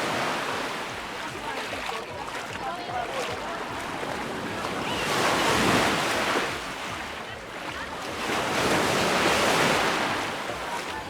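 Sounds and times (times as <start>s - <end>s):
waves washing up beach: 0.0s - 11.0s.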